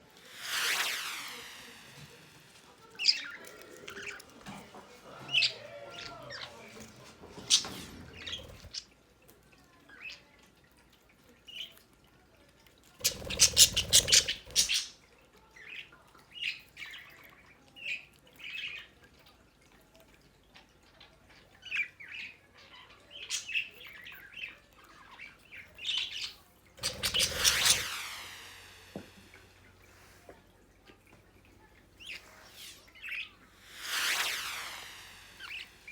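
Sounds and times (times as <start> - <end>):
budgerigars chirping: 25.9 - 27.9.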